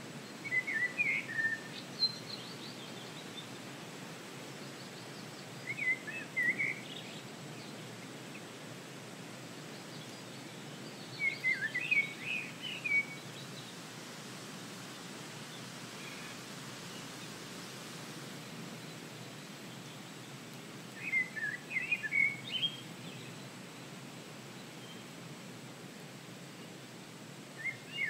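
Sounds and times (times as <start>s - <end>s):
breeze hiss: 0.0s - 28.0s
songbird warbling: 11.2s - 13.2s, 21.0s - 22.8s.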